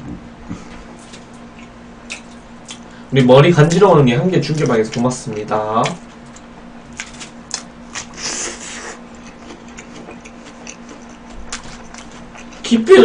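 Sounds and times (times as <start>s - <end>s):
faint steady hum: 0.0s - 13.0s
mouth chewing with wet smacks: 9.1s - 12.7s.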